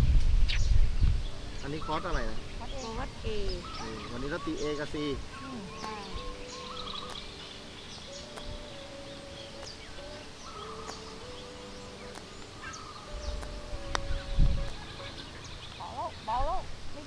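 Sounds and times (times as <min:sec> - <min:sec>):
birds chirping: 0:00.3 - 0:17.0
long held low tones: 0:01.2 - 0:16.7.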